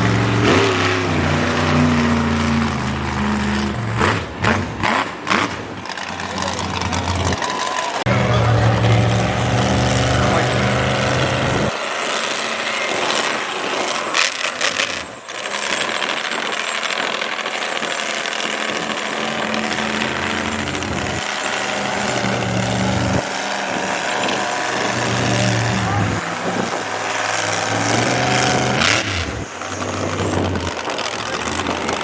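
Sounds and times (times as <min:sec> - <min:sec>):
monster truck engine running: 0:00.0 - 0:32.0.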